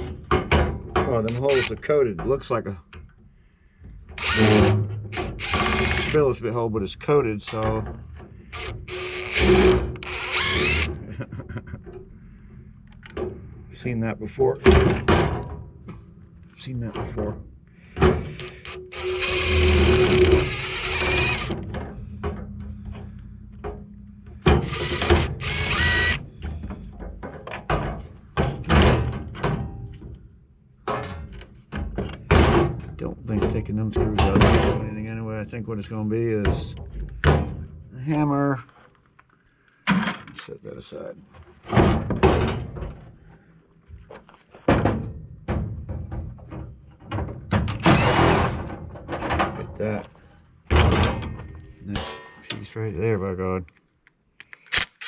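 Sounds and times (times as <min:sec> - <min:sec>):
power drill whining: 0:04.2 - 0:06.2, 0:08.5 - 0:11.0, 0:18.3 - 0:21.7, 0:24.6 - 0:26.3, 0:47.7 - 0:48.6
scrap metal parts clanking: 0:47.7 - 0:52.8.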